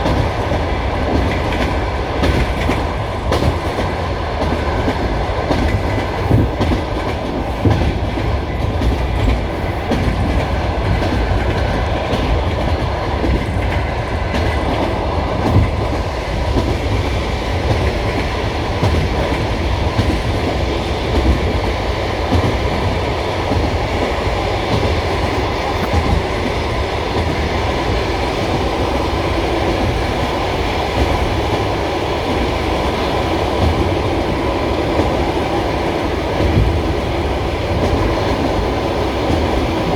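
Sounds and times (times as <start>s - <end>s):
clickety-clack over rail joints: 0.0s - 39.9s
wheels rumbling on rails: 0.0s - 39.9s.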